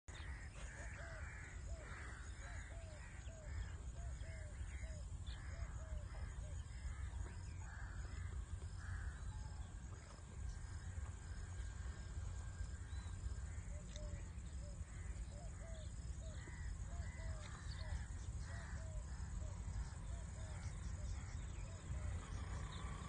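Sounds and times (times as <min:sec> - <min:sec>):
low steady rumble: 0:00.1 - 0:23.0.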